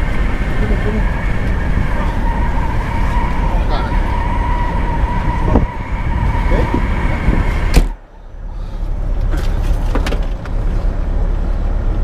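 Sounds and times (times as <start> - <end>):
loud storm wind: 0.0 - 9.1
low rumble: 0.0 - 12.0.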